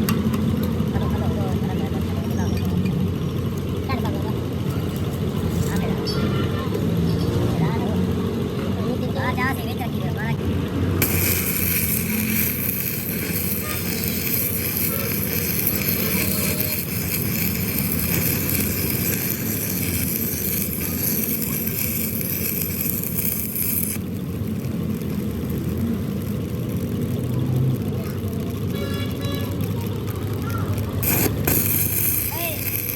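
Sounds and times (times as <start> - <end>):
heavy workshop machinery running: 9.3 - 32.9
high hiss: 11.0 - 24.2, 31.0 - 32.9.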